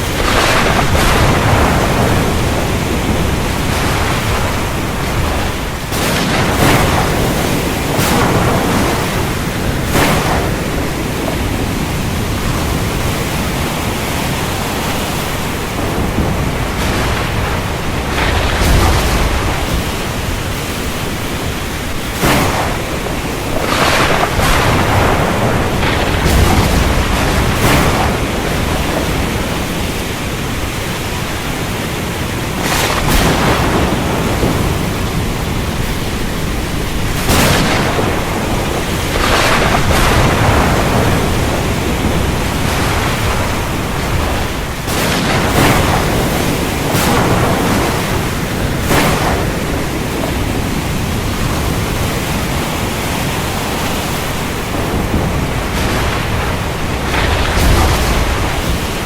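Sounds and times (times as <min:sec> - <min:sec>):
heavy rain: 0:00.0 - 0:59.0
sharp thunder cracks: 0:00.0 - 0:59.0
thunder rumble: 0:00.0 - 0:59.0.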